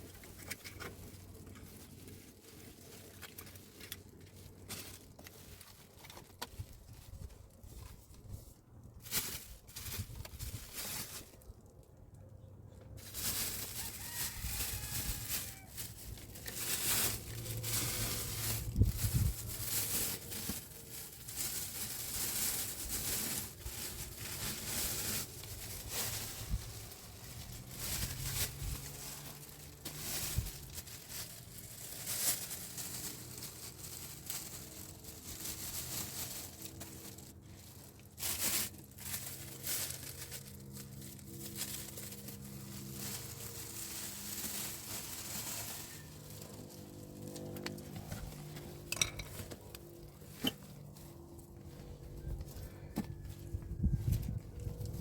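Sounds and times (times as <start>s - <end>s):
plastic bag crinkling: 0.0s - 12.0s, 12.7s - 55.0s
plastic tearing: 13.0s - 51.3s.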